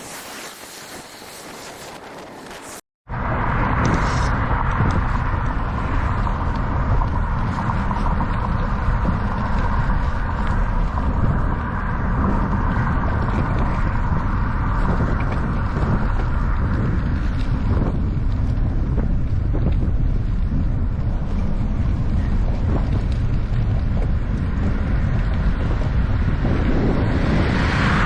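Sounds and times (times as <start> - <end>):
wind buffeting microphone: 0.1 - 28.0.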